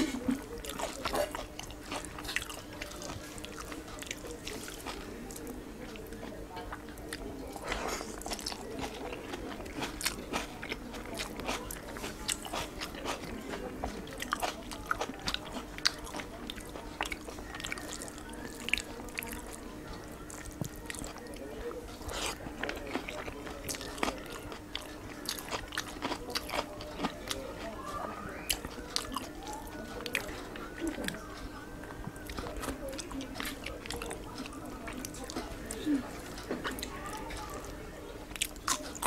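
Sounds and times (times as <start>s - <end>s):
person chewing and biting food: 22.0s - 27.4s.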